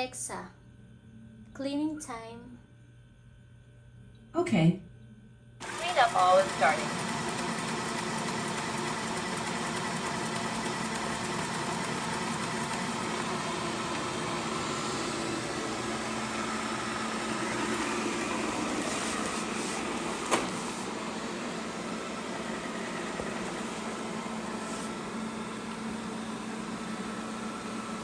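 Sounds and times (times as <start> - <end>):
robot vacuum humming: 5.6 - 28.0.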